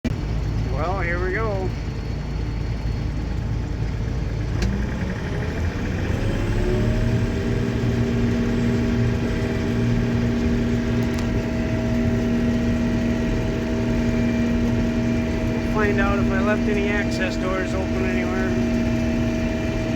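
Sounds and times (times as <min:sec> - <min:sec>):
combine harvester running: 0:00.0 - 0:19.9
machine whine: 0:00.2 - 0:19.9
click: 0:11.0 - 0:11.3.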